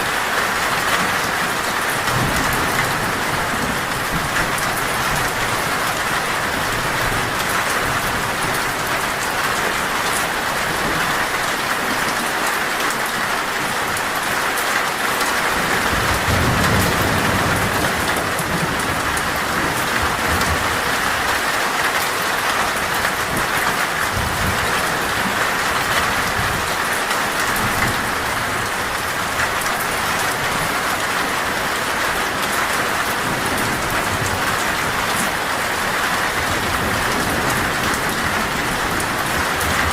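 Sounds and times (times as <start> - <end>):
heavy rain on a metal roof: 0.0 - 39.9
thunder rumbling: 15.6 - 21.4.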